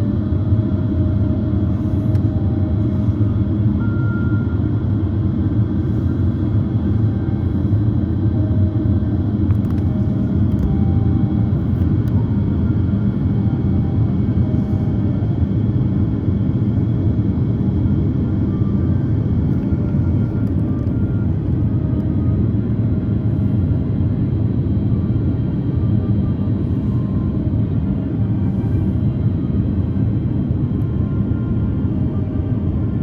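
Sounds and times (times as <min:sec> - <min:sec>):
airliner cabin rumble: 0:00.0 - 0:33.0.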